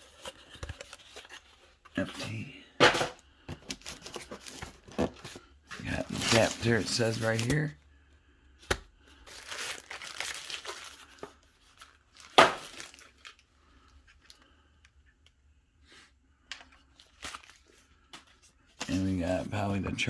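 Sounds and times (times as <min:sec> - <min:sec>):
packaging rustling and crinkling: 0:00.0 - 0:07.7, 0:08.6 - 0:14.5, 0:16.5 - 0:19.4
packaging ripping: 0:09.3 - 0:13.4.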